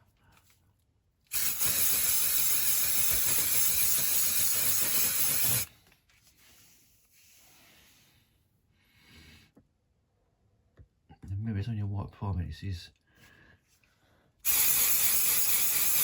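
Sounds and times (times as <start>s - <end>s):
aerosol can spraying: 1.3s - 5.7s, 14.4s - 16.0s.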